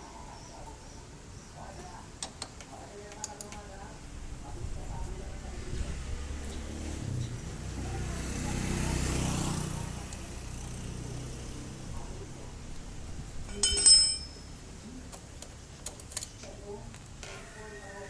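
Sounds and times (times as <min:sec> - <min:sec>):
metallic clink: 0:13.5 - 0:14.6.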